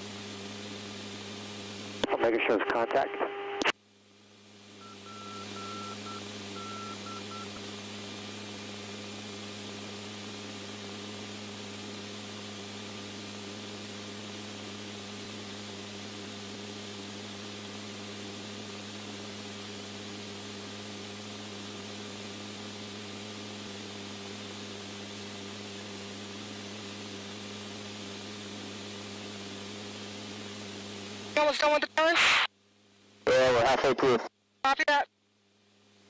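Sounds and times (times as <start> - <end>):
radio channel hiss and hum: 0.0 - 36.0
short beeps: 4.8 - 7.5.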